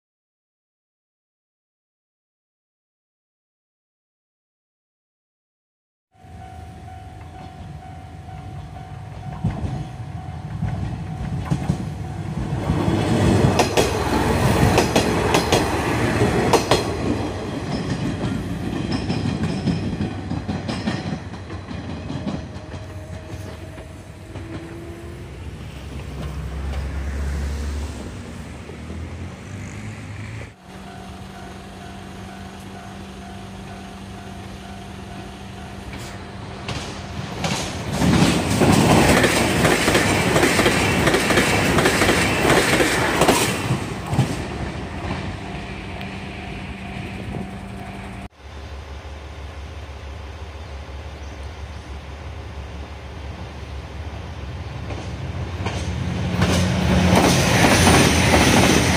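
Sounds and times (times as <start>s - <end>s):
diesel train passing at speed: 6.2s - 58.9s
wheels clattering over rail joints: 10.5s - 27.1s, 35.1s - 45.6s, 54.7s - 58.9s.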